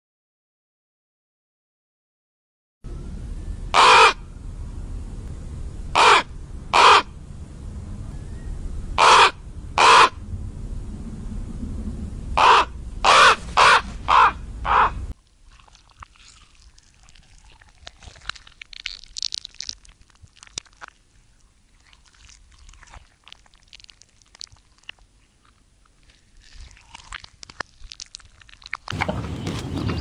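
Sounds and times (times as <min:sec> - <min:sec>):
bird harsh calls: 0:03.7 - 0:04.2, 0:05.9 - 0:07.2, 0:08.1 - 0:10.2, 0:12.4 - 0:15.0
faint bird chirps: 0:08.0 - 0:08.7.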